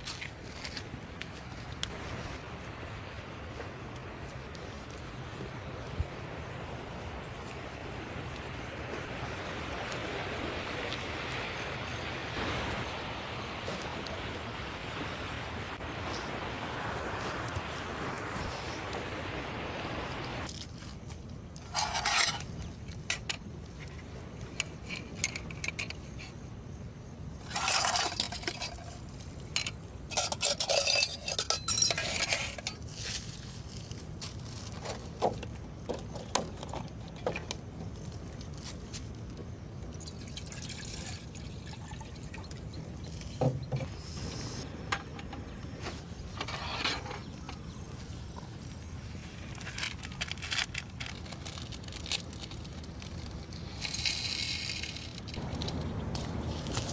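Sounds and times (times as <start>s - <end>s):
steady low background noise: 0.0s - 56.9s
cookware clinking and knocking: 30.1s - 32.6s
liquid pouring and splashing: 40.0s - 43.4s.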